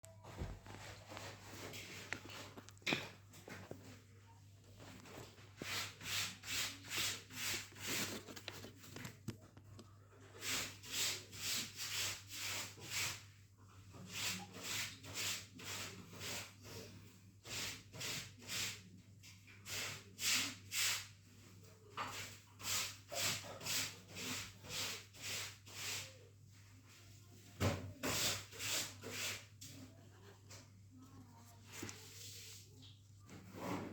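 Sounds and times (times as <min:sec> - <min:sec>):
rubbing strokes like hand sanding: 0:05.6 - 0:08.2, 0:10.4 - 0:13.2, 0:22.6 - 0:26.2, 0:28.0 - 0:29.8.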